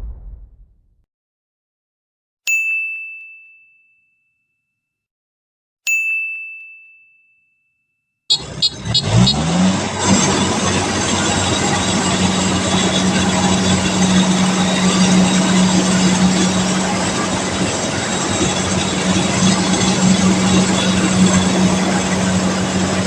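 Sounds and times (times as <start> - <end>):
diesel engine running: 8.3 - 23.0.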